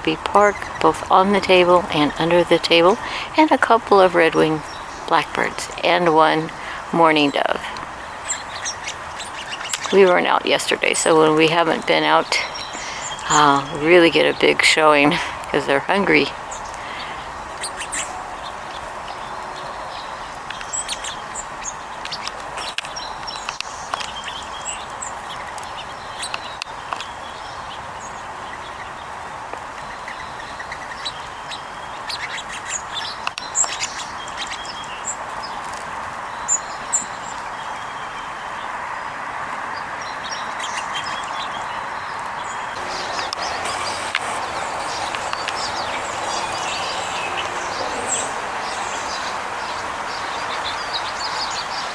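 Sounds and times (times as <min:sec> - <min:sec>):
small birds chirping: 0:00.0 - 0:51.9
steady background hiss: 0:00.0 - 0:51.9.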